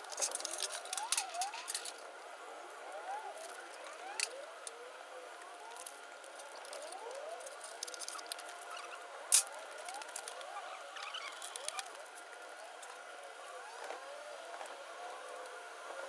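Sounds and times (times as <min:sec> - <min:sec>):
hand tools clicking on metal: 0:00.0 - 0:02.0, 0:07.4 - 0:10.3.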